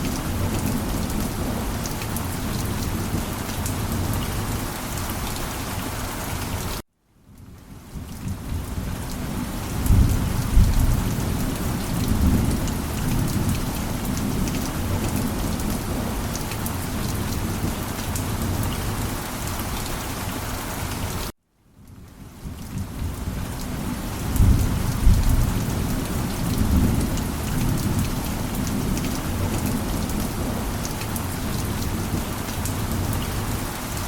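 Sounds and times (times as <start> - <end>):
heavy rain: 0.0 - 34.0
thunder rumbling: 8.3 - 16.4, 22.8 - 33.6.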